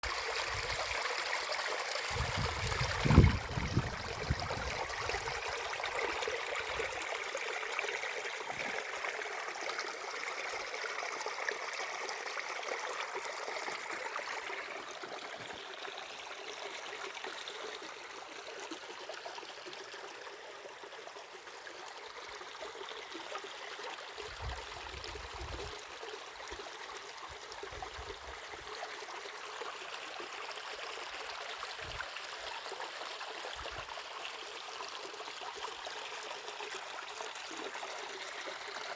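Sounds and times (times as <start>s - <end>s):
stream of water rushing: 0.0s - 10.8s.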